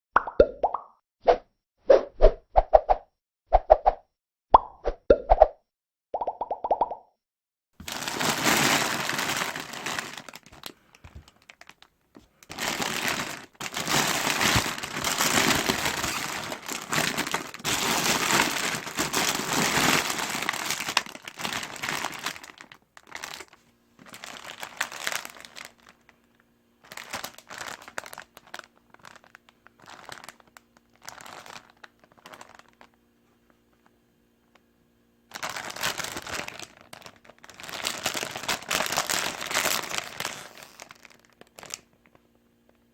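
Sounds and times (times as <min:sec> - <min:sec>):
plastic packaging crinkling: 0:07.8 - 0:33.0, 0:35.3 - 0:42.3.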